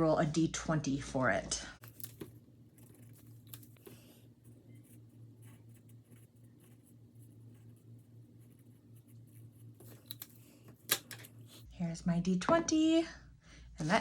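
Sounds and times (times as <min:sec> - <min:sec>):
low steady hum: 0:00.0 - 0:14.0
marker scratching on paper: 0:02.8 - 0:11.7.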